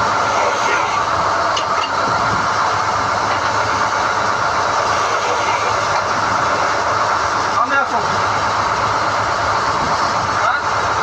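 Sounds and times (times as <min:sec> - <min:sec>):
drilling rig machine drone: 0:00.0 - 0:11.0.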